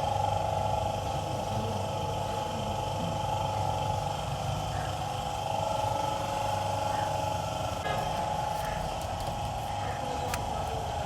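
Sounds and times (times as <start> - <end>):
machine humming: 4.6 - 11.0.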